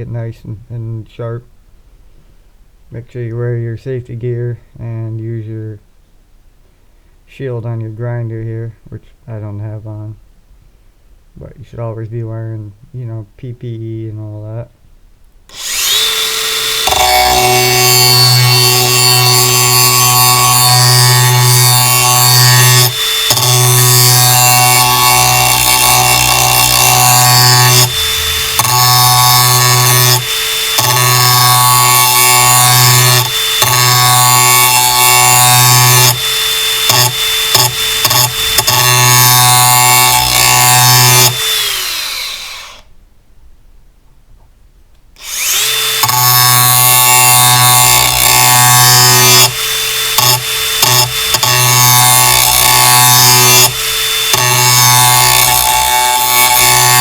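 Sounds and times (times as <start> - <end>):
angle grinder grinding steel: 15.5 - 42.9, 45.2 - 57.0.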